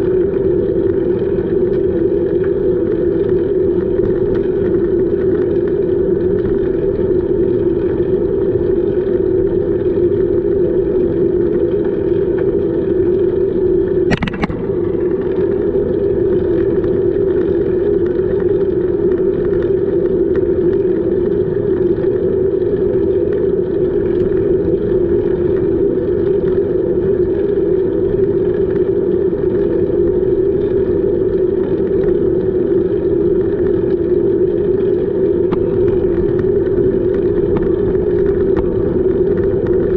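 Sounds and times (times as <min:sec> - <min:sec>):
wind noise on microphone: 0:00.0 - 0:39.9
sharp click: 0:14.1 - 0:14.7.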